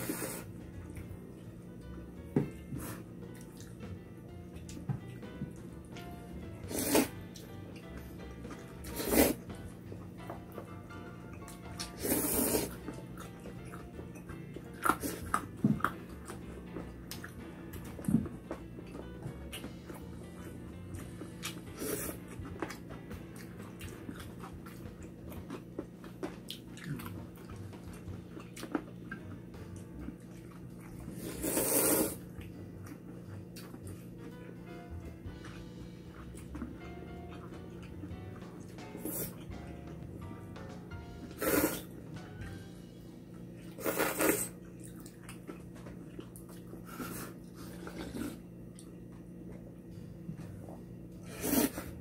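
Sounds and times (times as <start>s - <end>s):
chewing and eating noises: 0.0s - 52.0s
low steady hum: 0.0s - 52.0s
chewing with wet clicks: 3.3s - 3.9s, 12.8s - 20.1s, 22.2s - 31.1s, 32.2s - 34.5s, 44.3s - 47.0s, 48.7s - 49.8s
slurp of noodles: 6.7s - 7.1s, 8.9s - 9.4s, 11.9s - 12.8s, 31.2s - 32.2s, 41.4s - 41.9s, 43.8s - 44.6s, 51.2s - 52.0s.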